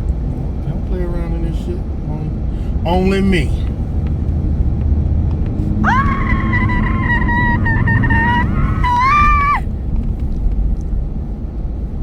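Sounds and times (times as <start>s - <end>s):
car driving rumble: 0.0s - 12.0s
person squealing: 5.8s - 9.6s.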